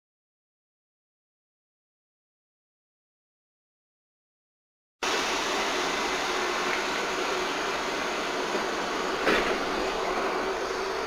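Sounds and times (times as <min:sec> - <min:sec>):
electric train whirring: 0:05.0 - 0:11.0.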